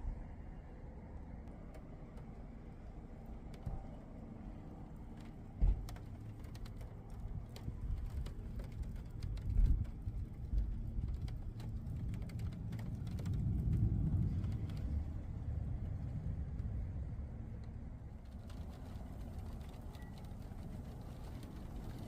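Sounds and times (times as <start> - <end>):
low rumble: 9.3 - 22.0.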